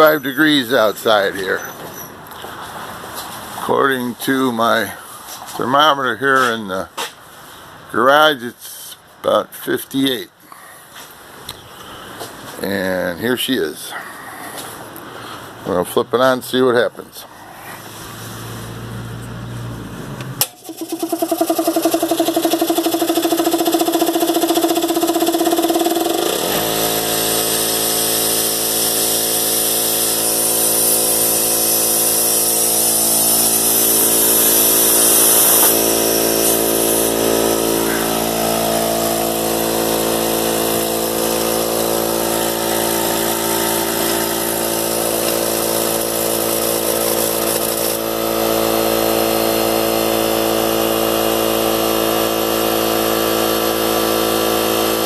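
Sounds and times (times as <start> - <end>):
air compressor running: 19.8 - 55.0.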